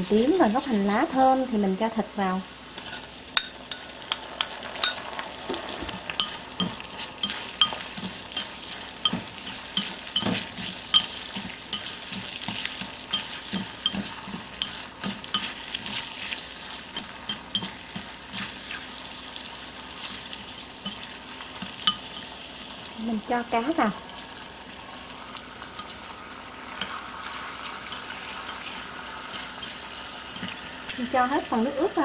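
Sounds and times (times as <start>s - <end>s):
meat sizzling in a pot: 0.0s - 32.0s
chopsticks tapping a pot: 3.4s - 16.0s, 16.9s - 18.5s, 20.8s - 22.2s.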